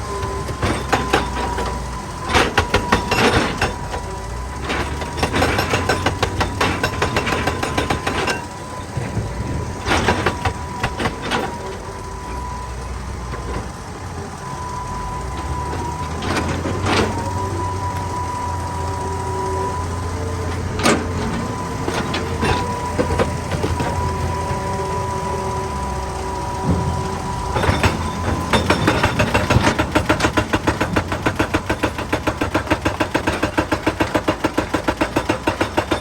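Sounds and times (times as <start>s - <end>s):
excavator engine drone: 0.0s - 36.0s
knocking and clanking on rock: 20.8s - 24.7s, 26.6s - 36.0s.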